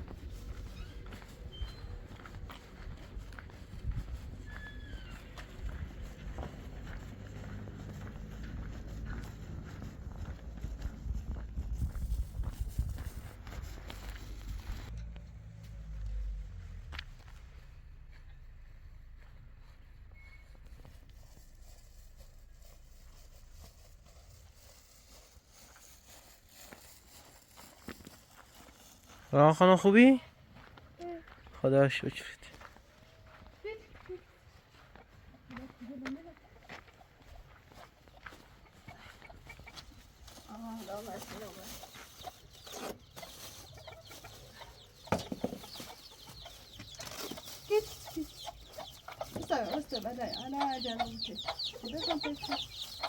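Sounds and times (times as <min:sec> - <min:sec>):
chickens clucking: 0:33.3 - 0:53.0.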